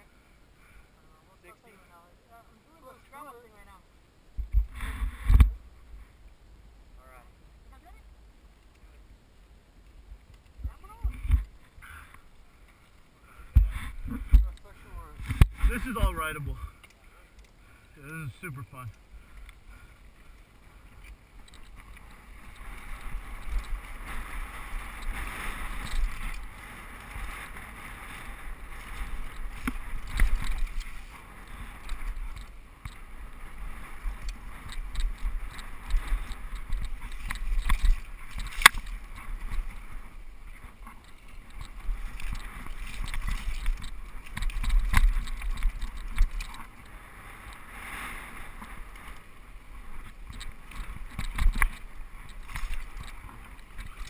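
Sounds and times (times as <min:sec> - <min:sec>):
wind rumble on microphone: 0:04.3 - 0:06.2, 0:13.5 - 0:16.7, 0:20.6 - 0:54.0
bike tyres rattling over rocks: 0:21.0 - 0:47.7, 0:48.3 - 0:54.0.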